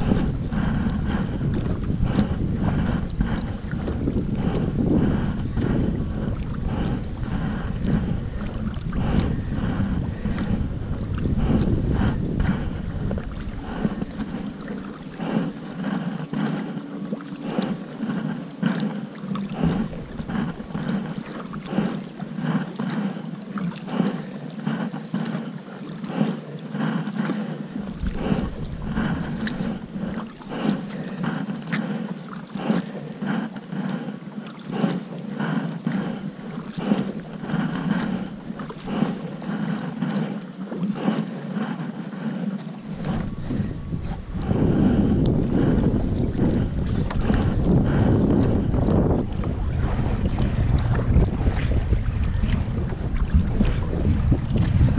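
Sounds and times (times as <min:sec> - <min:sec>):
wind rumbling on microphone: 0:00.0 - 0:24.9, 0:26.8 - 0:32.0, 0:34.7 - 0:54.9
paddle blades splashing: 0:00.0 - 0:54.9
water slapping and lapping: 0:00.0 - 0:54.9.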